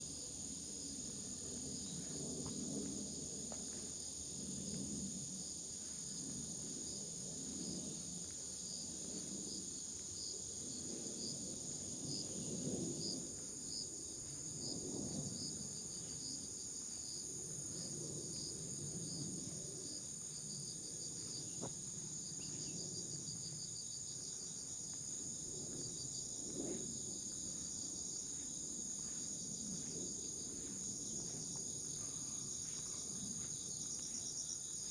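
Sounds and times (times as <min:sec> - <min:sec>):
footsteps on forest trail: 0:27.2 - 0:34.9.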